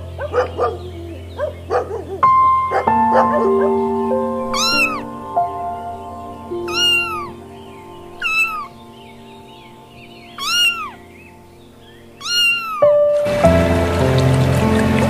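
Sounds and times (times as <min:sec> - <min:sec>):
soft background music: 0:00.0 - 0:15.0
animal giving high calls: 0:04.5 - 0:05.1, 0:06.6 - 0:07.3, 0:08.2 - 0:08.7, 0:10.4 - 0:11.0, 0:12.2 - 0:12.9.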